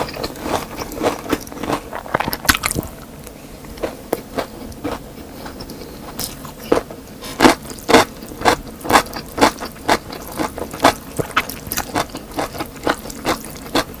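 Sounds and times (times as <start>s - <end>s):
person chewing crunchy food: 0.0s - 14.0s.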